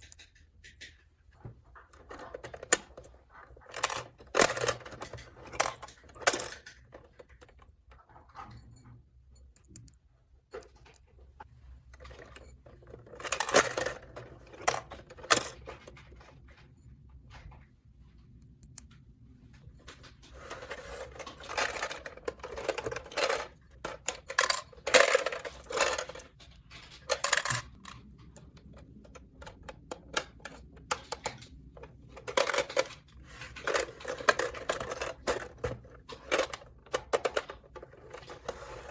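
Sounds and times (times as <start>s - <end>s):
plastic toy pieces clattering: 1.7s - 8.5s, 12.0s - 16.2s, 19.8s - 28.4s, 29.0s - 38.9s.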